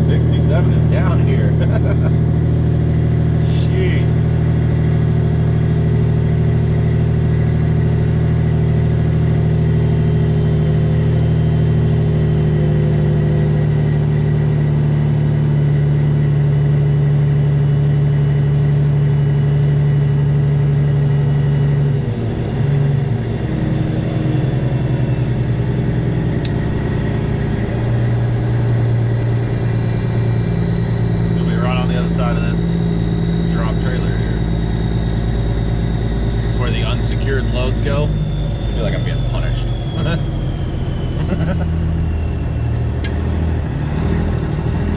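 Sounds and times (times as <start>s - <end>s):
diesel truck engine running: 0.0s - 44.9s.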